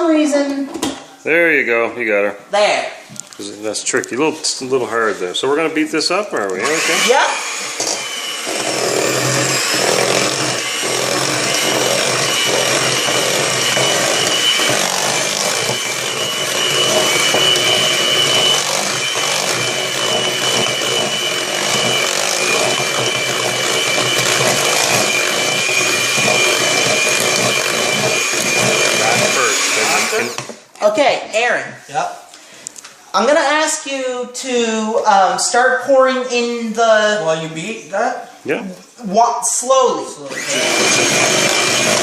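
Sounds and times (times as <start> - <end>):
electric mixer whining: 6.4 - 30.6, 40.2 - 42.0.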